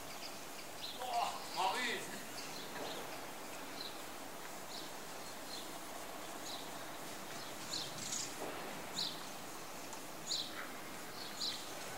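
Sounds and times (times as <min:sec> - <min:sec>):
faint outdoor background hiss: 0:00.0 - 0:11.9.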